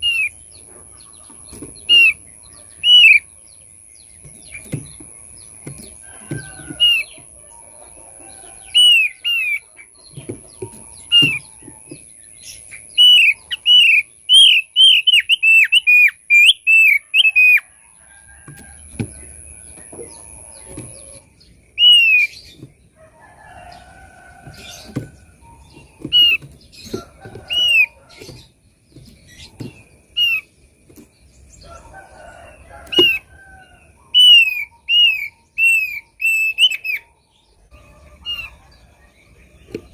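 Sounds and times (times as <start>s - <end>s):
bird chirping: 0.0s - 39.9s
soft knocks and rustles: 22.4s - 30.1s.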